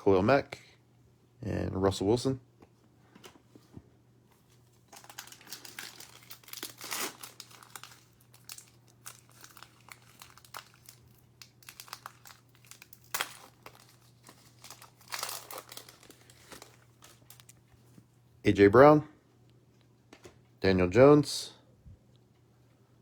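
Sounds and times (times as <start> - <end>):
plastic wrapper crinkling: 4.5 - 17.8
plastic wrapper ripping: 4.8 - 17.6.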